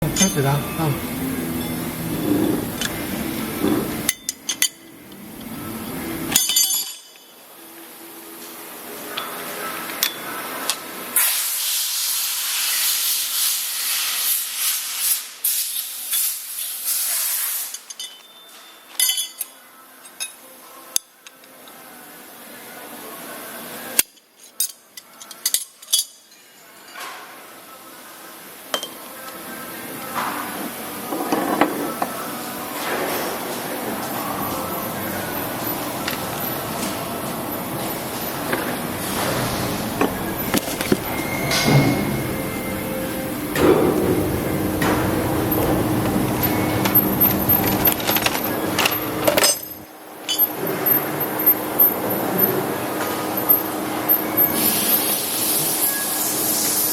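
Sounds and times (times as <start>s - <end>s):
grinding machine spindle humming: 0.0s - 6.4s, 33.7s - 56.9s
metallic clinks and knocks: 17.8s - 20.4s, 45.5s - 52.2s.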